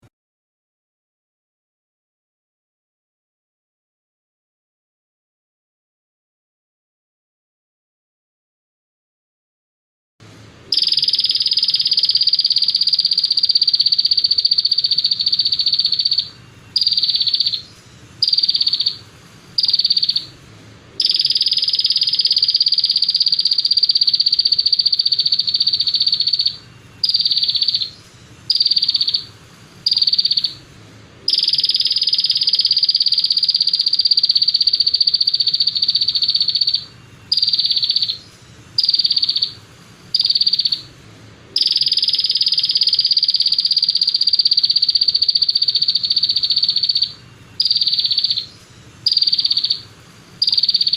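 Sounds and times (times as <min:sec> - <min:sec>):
buzzy high-pitched bird trill: 0:10.7 - 0:50.9.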